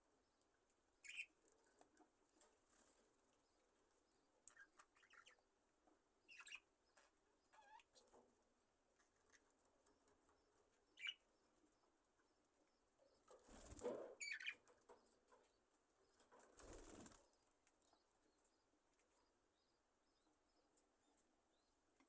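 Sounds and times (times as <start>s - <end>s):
soft bird chirps: 1.0s - 1.8s, 2.7s - 5.6s, 6.2s - 8.2s, 9.0s - 22.0s
bird wings fluttering: 13.4s - 14.0s, 16.4s - 17.3s.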